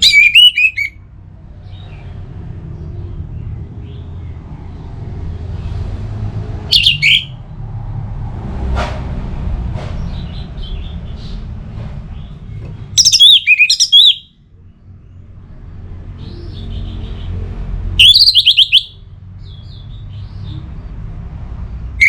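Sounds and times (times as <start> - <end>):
bird singing whistled notes: 0.0 - 1.0, 6.7 - 7.4, 13.0 - 14.3, 18.0 - 19.0.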